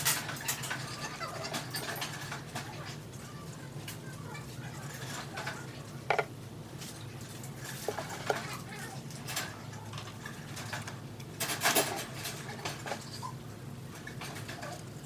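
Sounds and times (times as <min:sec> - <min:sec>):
clatter of parts: 0:09.2 - 0:13.2.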